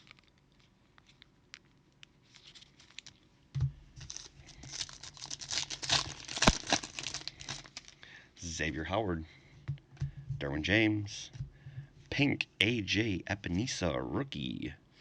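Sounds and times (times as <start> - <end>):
foil wrapper crinkling: 0.0 - 3.3, 4.0 - 8.1.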